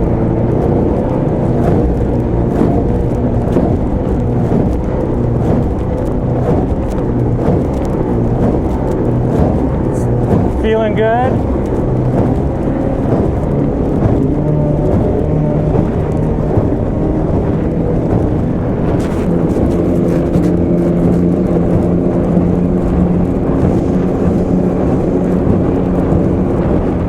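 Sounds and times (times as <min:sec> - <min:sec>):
outboard motor running: 0:00.0 - 0:27.0
water rushing: 0:00.0 - 0:27.0
wind rushing: 0:00.0 - 0:27.0.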